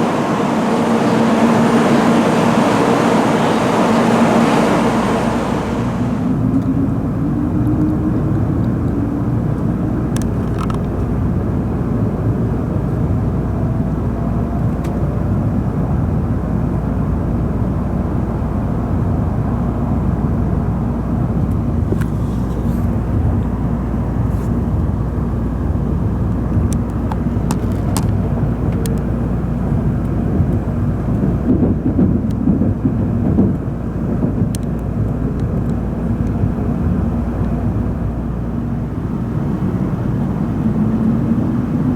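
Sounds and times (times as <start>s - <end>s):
faint rising whine: 0.0s - 10.1s
train rumble inside cabin: 0.0s - 41.9s.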